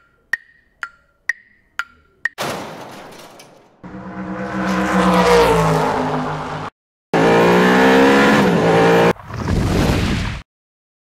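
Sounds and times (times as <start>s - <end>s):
car engine revving: 3.8s - 9.2s.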